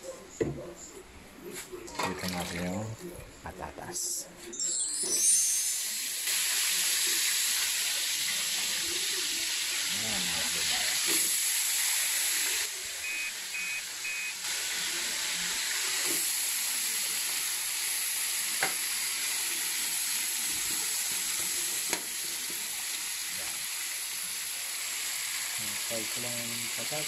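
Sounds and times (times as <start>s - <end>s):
potatoes frying in oil: 5.6s - 27.0s
short beeps: 13.0s - 14.3s.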